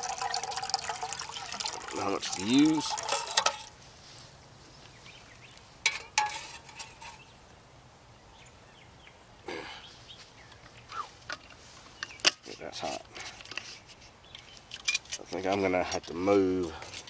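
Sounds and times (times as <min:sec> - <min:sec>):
metal clinks of canteen cup: 0:01.4 - 0:03.7
rustling: 0:02.2 - 0:07.3, 0:09.9 - 0:17.0.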